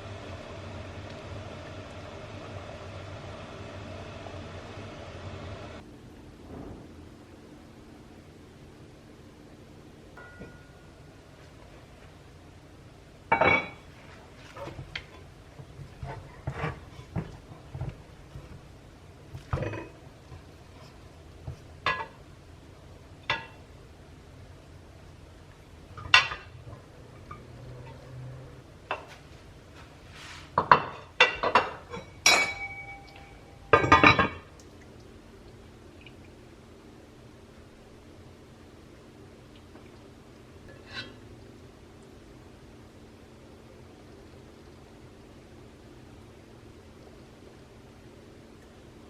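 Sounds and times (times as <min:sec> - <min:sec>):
dishes and cutlery clinking: 0:10.2 - 0:10.8, 0:19.4 - 0:19.9, 0:30.6 - 0:34.5.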